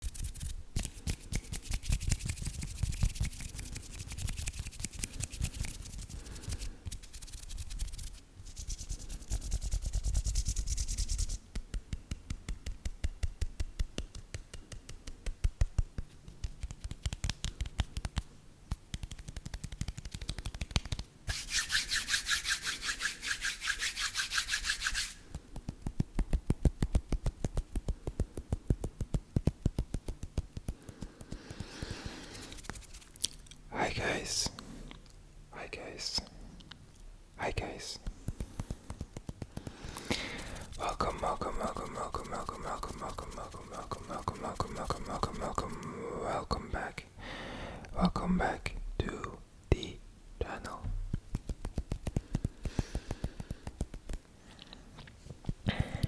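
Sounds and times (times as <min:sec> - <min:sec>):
scratching and rubbing: 0:00.0 - 0:33.5, 0:37.5 - 0:45.9, 0:50.4 - 0:54.3
fast tapping on objects: 0:11.4 - 0:21.1, 0:25.4 - 0:32.8, 0:38.0 - 0:40.9, 0:51.1 - 0:54.3.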